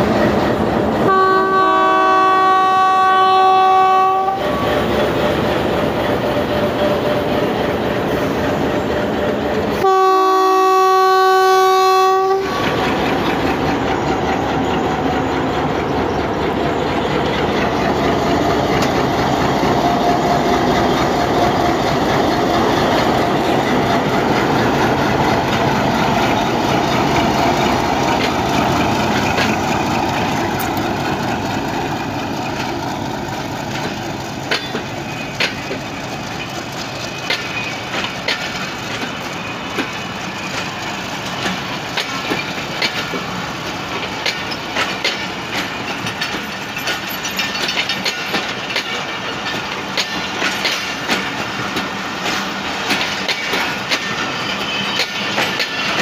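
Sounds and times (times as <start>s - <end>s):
diesel locomotive engine: 0.0s - 56.0s
wheels clicking over rail joints: 12.6s - 56.0s.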